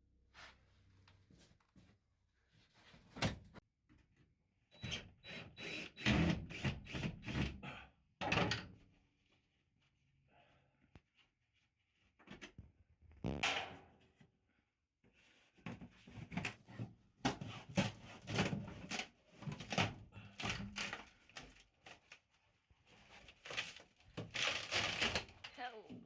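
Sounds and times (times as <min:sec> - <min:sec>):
panels tearing: 0:23.2 - 0:25.6.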